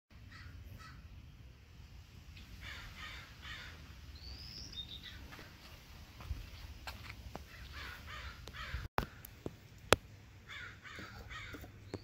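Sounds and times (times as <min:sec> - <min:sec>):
low steady rumble: 0:00.1 - 0:07.7
bird cawing: 0:00.2 - 0:01.1, 0:02.6 - 0:03.9, 0:07.4 - 0:09.4, 0:10.4 - 0:12.0.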